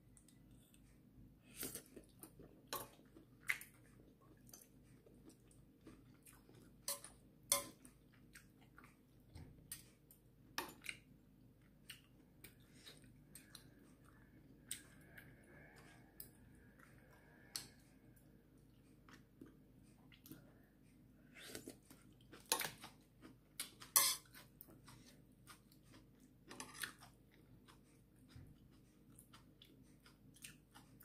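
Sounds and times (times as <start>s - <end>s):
soft chewing: 0.0s - 31.0s.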